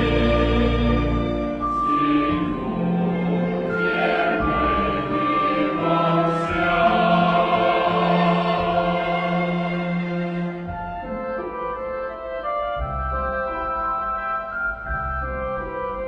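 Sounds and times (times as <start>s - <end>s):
choir singing long notes: 0.0s - 10.7s
musical accompaniment: 0.0s - 16.0s.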